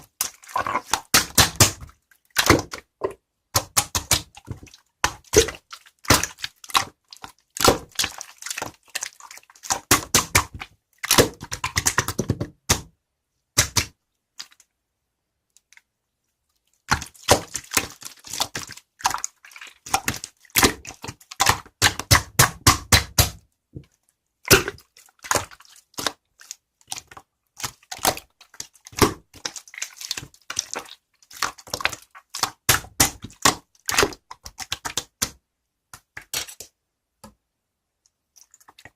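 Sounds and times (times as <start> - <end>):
slime squeezed crackling pops: 24.5 - 25.6.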